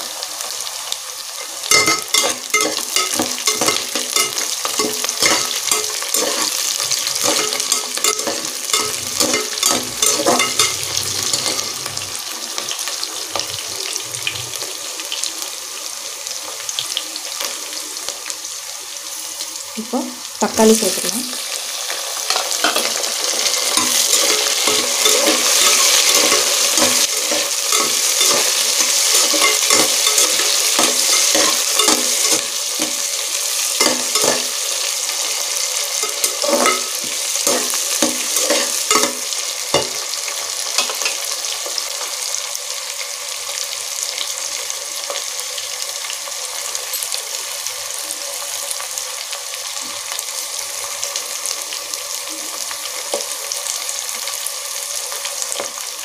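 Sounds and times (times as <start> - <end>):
food sizzling in hot oil: 0.0 - 56.0
metal ladle scraping a pot: 1.7 - 12.1, 22.6 - 33.0, 35.7 - 40.0.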